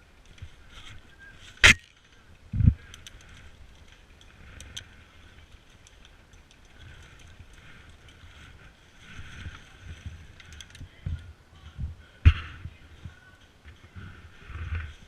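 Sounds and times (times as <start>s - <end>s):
sharp crack: 1.6s - 2.0s.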